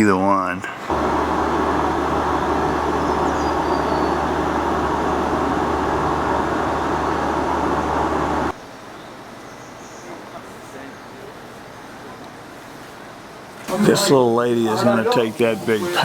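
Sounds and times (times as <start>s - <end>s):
dense rushing noise: 0.9s - 8.6s
motor humming: 0.9s - 8.6s.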